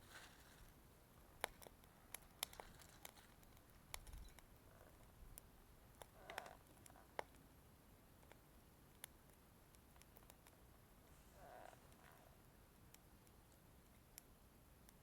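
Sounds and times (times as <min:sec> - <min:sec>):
wood crackling and popping in stove: 0:01.4 - 0:07.4.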